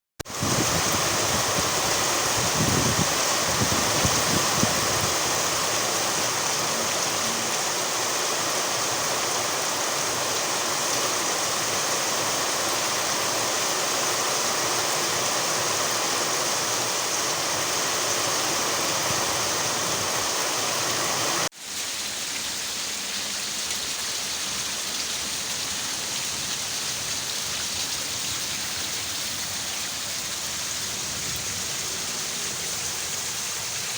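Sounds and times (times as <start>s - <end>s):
steady rain pouring: 0.2s - 33.9s
low wind rumbles: 0.3s - 6.7s, 15.6s - 21.4s.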